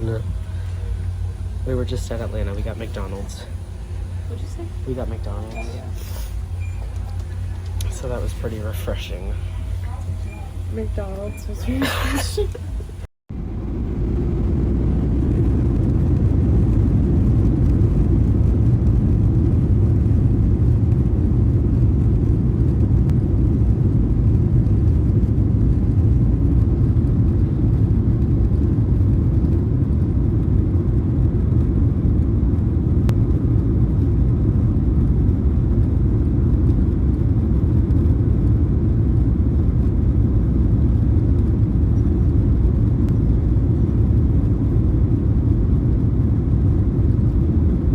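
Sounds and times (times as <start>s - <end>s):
airliner cabin engine rumble: 0.0s - 47.9s.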